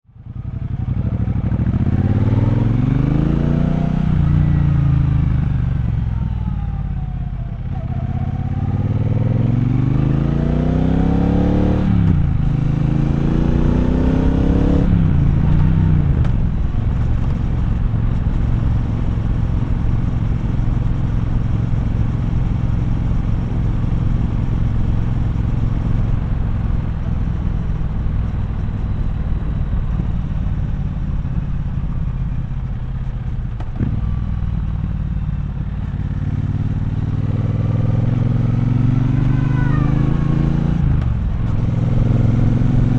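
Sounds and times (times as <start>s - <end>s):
motorcycle engine accelerating: 0.2s - 42.9s.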